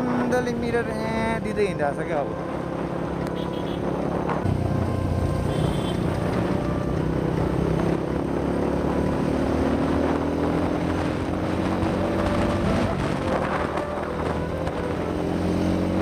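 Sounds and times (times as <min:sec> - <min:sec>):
dirt bike engine accelerating: 0:03.9 - 0:16.0.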